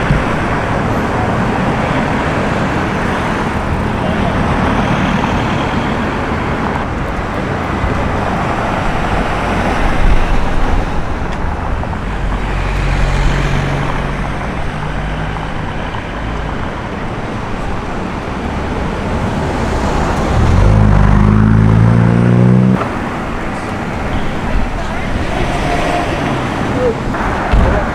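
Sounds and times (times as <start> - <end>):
car engine accelerating: 0.0 - 27.9
cars passing: 0.0 - 27.9.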